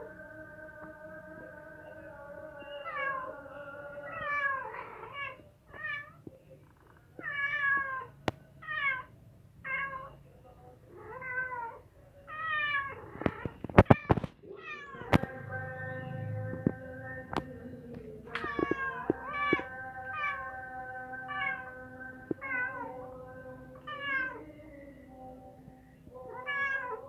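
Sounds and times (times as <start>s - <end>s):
cat meowing: 2.8s - 3.4s, 4.0s - 6.3s, 7.2s - 10.2s, 10.9s - 15.3s, 18.3s - 23.2s, 23.8s - 24.6s, 26.2s - 27.0s.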